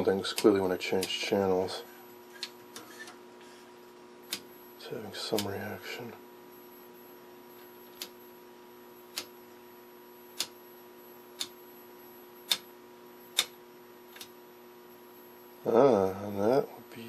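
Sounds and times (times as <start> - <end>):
rotary tv tuner clicking: 0.0 - 1.3, 4.2 - 4.5, 5.2 - 5.6, 7.6 - 8.2, 9.1 - 9.4, 10.3 - 10.6, 11.3 - 11.6, 12.4 - 12.7, 13.3 - 14.4
steady hum from tv: 0.0 - 17.0.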